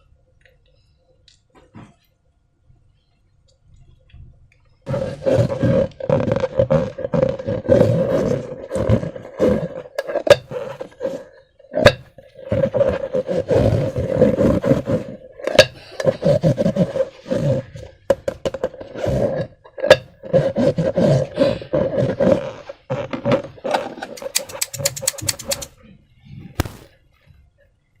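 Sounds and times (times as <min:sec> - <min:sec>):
slime squelching: 0:24.1 - 0:25.7
balloon snaps: 0:26.6 - 0:27.0.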